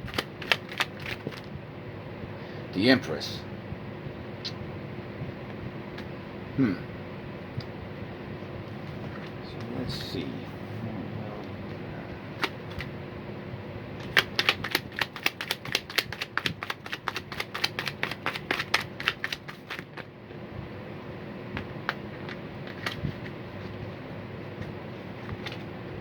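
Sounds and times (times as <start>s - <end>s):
cards being shuffled: 0.0s - 1.5s, 12.4s - 12.9s, 14.0s - 20.1s, 21.9s - 23.4s, 25.1s - 25.7s.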